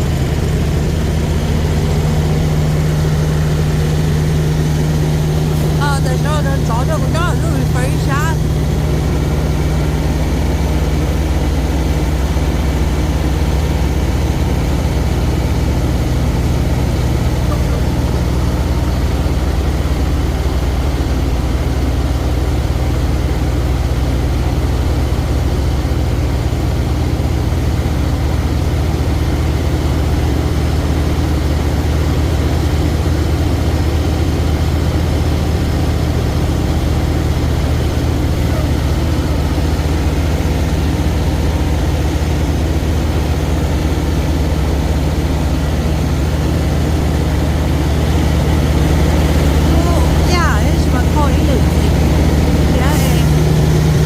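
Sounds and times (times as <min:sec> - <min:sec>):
truck engine droning: 0:00.0 - 0:54.0.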